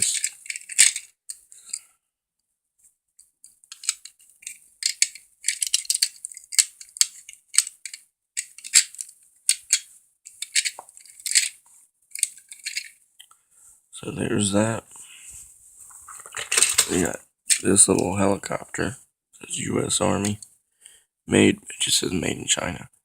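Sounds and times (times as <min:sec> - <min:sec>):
toy vehicles clicking and rattling: 0:00.0 - 0:01.9, 0:03.2 - 0:13.0, 0:16.2 - 0:18.0.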